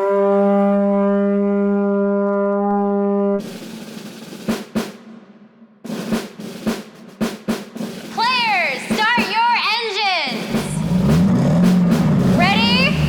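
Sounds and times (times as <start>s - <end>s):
held brass horn note: 0.0s - 3.6s
snare drum roll: 3.4s - 13.0s.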